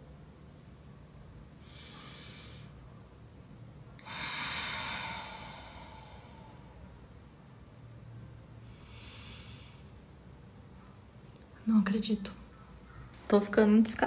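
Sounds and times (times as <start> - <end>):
person sighing heavily: 4.0 - 6.8.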